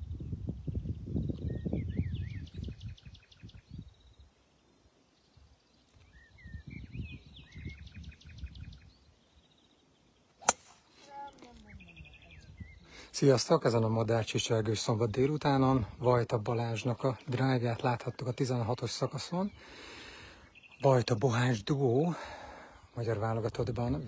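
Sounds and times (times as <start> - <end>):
wind rumbling on microphone: 0.0 - 4.3, 5.3 - 9.2, 11.3 - 13.0, 23.4 - 24.0
songbird singing: 0.0 - 24.0.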